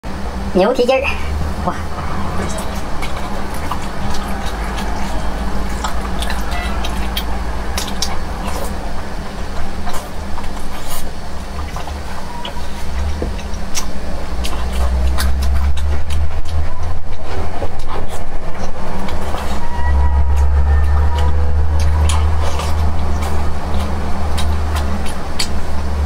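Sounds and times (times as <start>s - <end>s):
steady low hum: 0.0s - 26.0s
wet sticky chewing: 1.1s - 26.0s
sharp mouth clicks: 20.3s - 26.0s.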